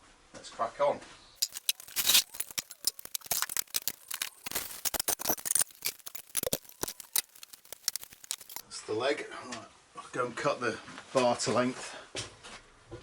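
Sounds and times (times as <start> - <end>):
hard objects clattering: 1.4 - 8.6.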